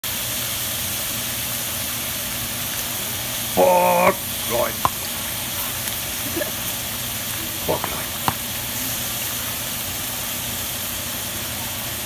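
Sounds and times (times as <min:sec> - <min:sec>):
meat sizzling in a skillet: 0:00.1 - 0:03.2.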